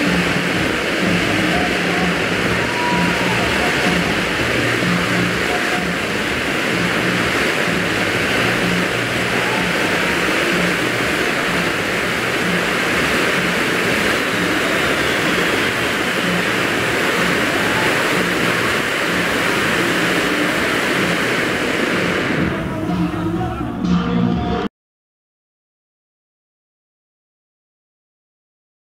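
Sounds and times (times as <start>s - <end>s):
firework fountain spraying hiss: 0.0s - 23.8s.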